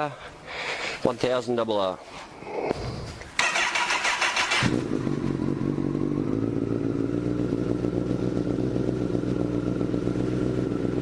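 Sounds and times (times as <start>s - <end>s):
starter motor cranking: 3.4s - 4.9s
motorcycle engine idling: 3.4s - 11.0s.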